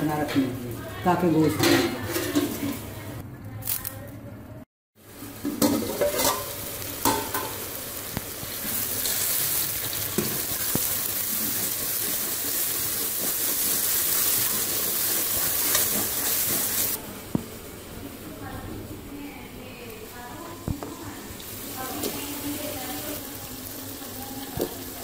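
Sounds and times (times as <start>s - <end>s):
food sizzling in oil: 5.0s - 25.0s
metal spoon clinking against pot: 5.6s - 7.5s.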